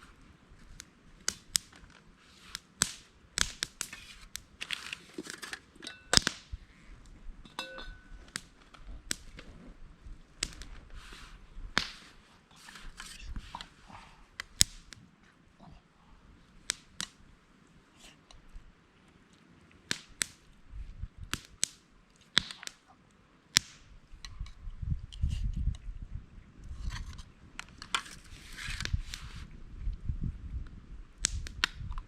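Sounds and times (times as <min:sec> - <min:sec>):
rustling of handled objects: 0:03.8 - 0:06.3, 0:10.6 - 0:15.4.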